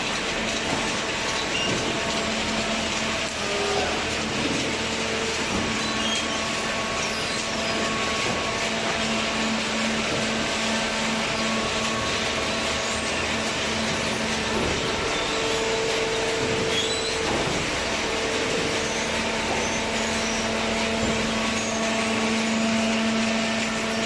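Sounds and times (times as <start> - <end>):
hydraulic baler machine drone: 0.0 - 24.0.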